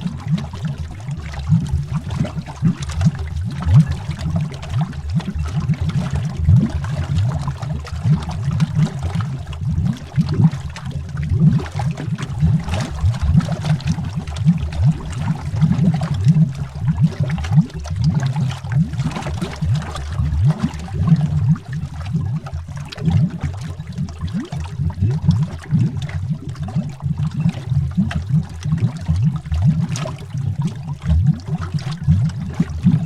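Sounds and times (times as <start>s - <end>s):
underwater bubbles gurgling: 0.0s - 33.0s.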